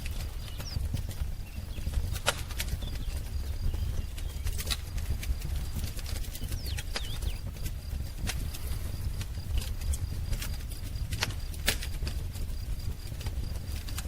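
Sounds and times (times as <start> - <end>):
faint bird chirps: 0.0 - 4.8, 6.3 - 7.5
wood fire crackling: 0.0 - 14.0.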